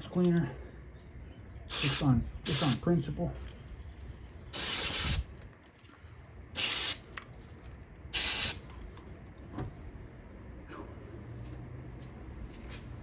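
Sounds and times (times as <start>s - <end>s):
aerosol spray hissing: 1.7s - 2.8s.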